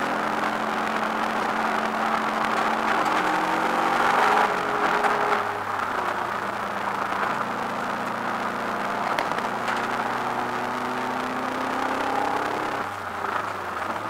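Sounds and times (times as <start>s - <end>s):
racing car engine: 0.0s - 14.0s.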